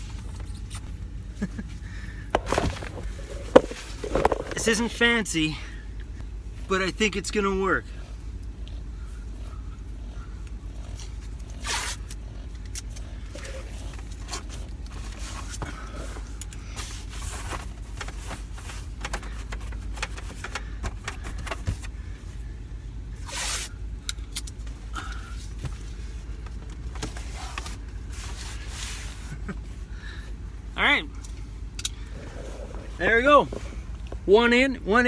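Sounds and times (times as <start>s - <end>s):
steady low rumble: 0.0s - 6.7s, 29.6s - 35.0s
clicks knocks and scrapes: 2.3s - 4.8s.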